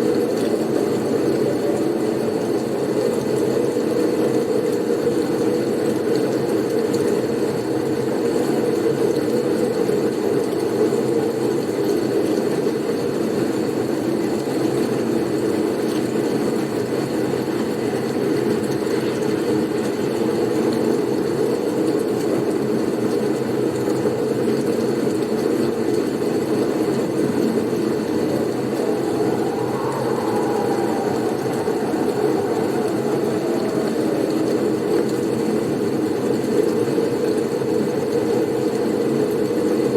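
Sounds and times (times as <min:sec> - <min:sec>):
blizzard wind rushing: 0:26.4 - 0:36.9
faint wind whistle: 0:26.4 - 0:36.9.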